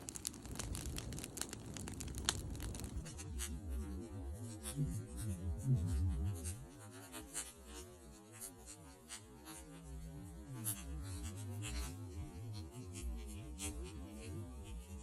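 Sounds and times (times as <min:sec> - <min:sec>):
campfire wood crackling: 0:00.0 - 0:03.5.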